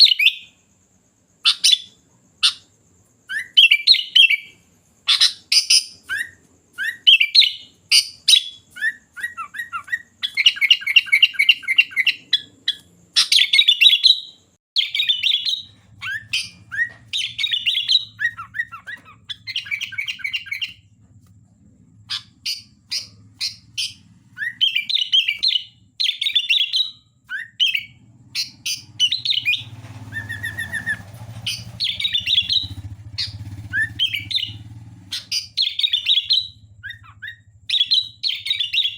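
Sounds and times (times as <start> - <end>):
bulbul chirping song: 0.0 - 38.9
faint low hum: 14.8 - 38.9.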